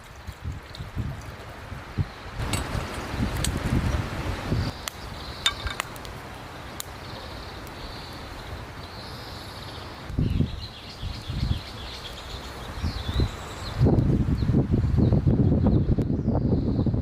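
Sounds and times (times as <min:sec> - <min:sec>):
wind buffeting microphone: 0:00.0 - 0:06.0, 0:10.1 - 0:17.0
faint outdoor background: 0:00.0 - 0:17.0.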